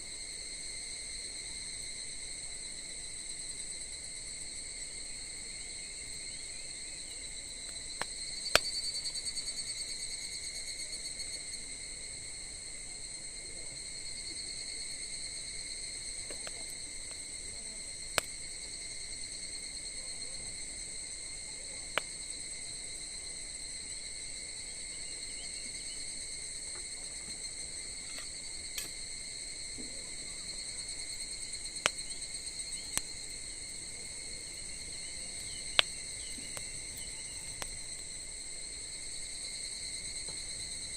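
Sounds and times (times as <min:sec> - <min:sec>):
high-pitched insect chorus: 0:00.0 - 0:40.9
campfire wood popping: 0:07.6 - 0:09.0, 0:16.2 - 0:17.3, 0:18.1 - 0:18.6, 0:29.7 - 0:39.2.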